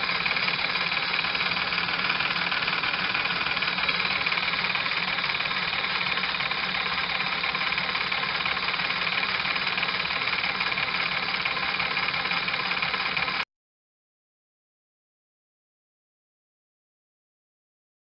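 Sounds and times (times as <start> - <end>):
small steam engine running: 0.0 - 13.4.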